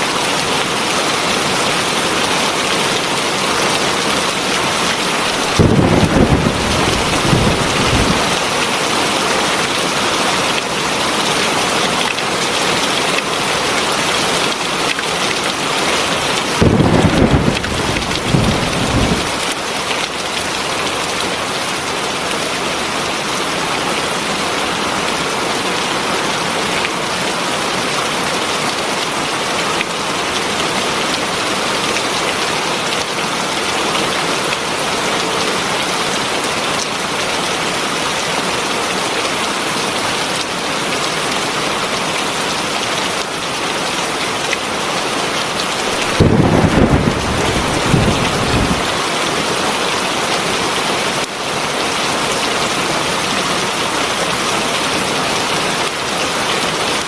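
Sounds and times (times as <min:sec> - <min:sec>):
heavy rain falling: 0:00.0 - 0:57.0
low rumble of thunder: 0:05.4 - 0:08.4, 0:16.6 - 0:19.5, 0:46.0 - 0:48.9.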